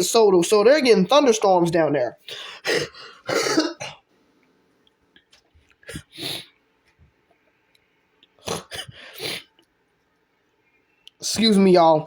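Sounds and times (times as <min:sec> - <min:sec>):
man coughing: 0:02.6 - 0:04.0, 0:08.4 - 0:09.1.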